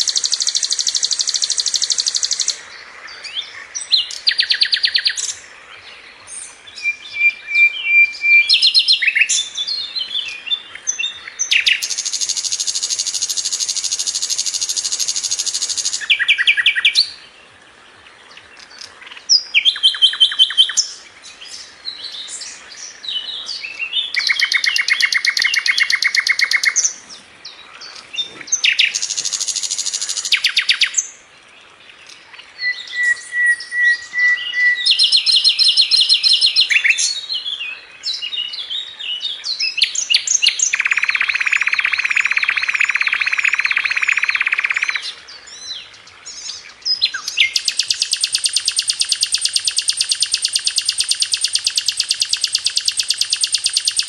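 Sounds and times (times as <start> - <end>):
flycatcher singing fast trills: 0.0 - 2.6, 6.7 - 17.2, 24.1 - 27.0, 27.9 - 31.1, 32.6 - 37.2, 39.6 - 45.1, 46.3 - 54.0.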